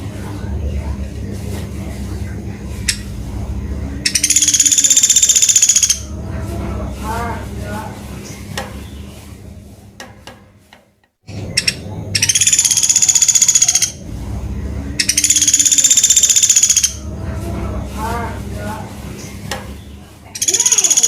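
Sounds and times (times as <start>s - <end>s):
woodpecker rattling trills: 3.9s - 6.2s, 11.4s - 14.2s, 14.9s - 17.2s, 20.4s - 21.0s.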